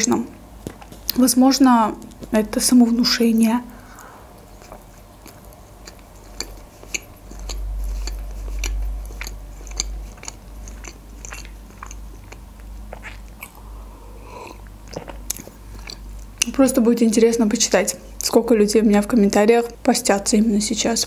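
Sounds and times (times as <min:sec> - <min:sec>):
chewing with wet mouth clicks: 0:04.0 - 0:13.7, 0:14.5 - 0:16.6.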